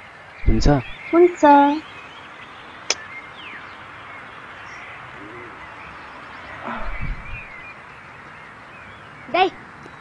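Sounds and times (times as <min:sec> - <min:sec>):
faint bird chirps: 0:00.0 - 0:10.0
outdoor background hiss: 0:00.0 - 0:10.0
bird hooting: 0:04.6 - 0:07.6
muffled low thump: 0:06.8 - 0:07.5.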